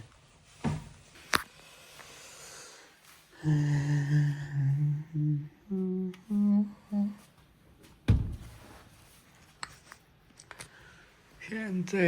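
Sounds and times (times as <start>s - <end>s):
man humming: 3.4s - 7.3s.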